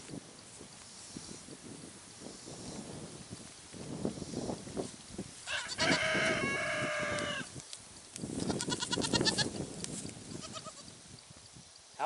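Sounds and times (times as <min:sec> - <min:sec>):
goats bleating: 0:08.5 - 0:09.6, 0:10.3 - 0:10.9.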